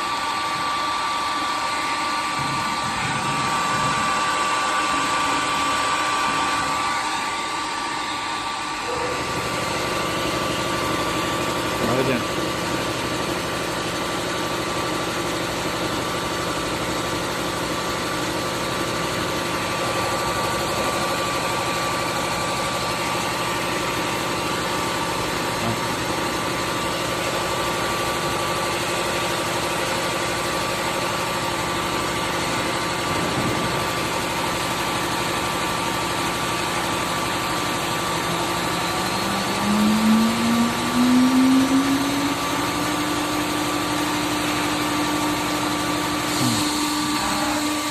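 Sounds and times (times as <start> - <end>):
engraving machine humming and whining: 0.0 - 47.9
louder hum rising in pitch: 38.6 - 43.3.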